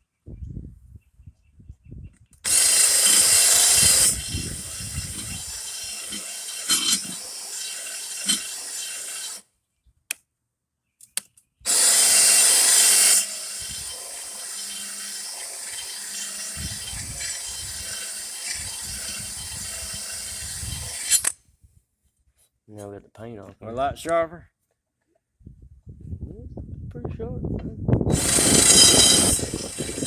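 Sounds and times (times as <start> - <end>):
grinder on steel blade: 2.5 - 9.4, 11.7 - 21.3, 28.1 - 30.0.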